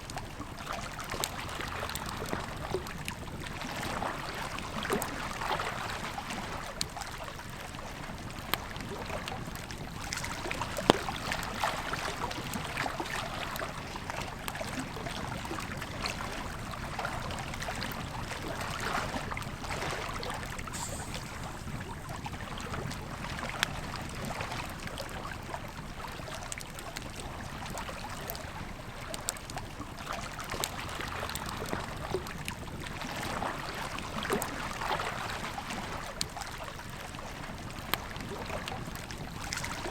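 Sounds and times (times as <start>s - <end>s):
river flowing: 17.0s - 23.6s
campfire crackling and popping: 20.4s - 24.2s.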